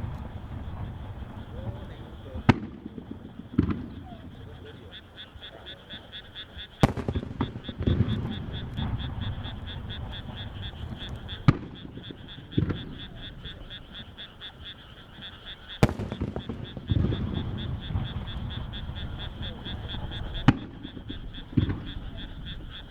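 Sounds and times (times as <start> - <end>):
frogs calling: 0.0 - 22.9
firework shell bangs: 6.8 - 10.1, 15.8 - 18.7
low rolling boom: 15.8 - 19.2.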